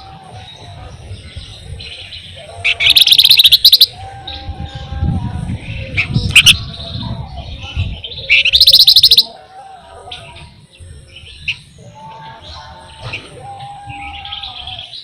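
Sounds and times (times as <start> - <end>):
fast rattling bird trill: 0.0 - 4.0, 5.6 - 9.4
songbird singing: 0.0 - 15.0.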